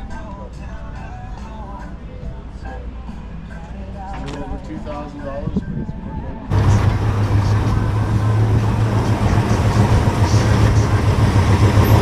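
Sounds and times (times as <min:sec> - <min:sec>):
car engine idling: 0:06.5 - 0:12.0.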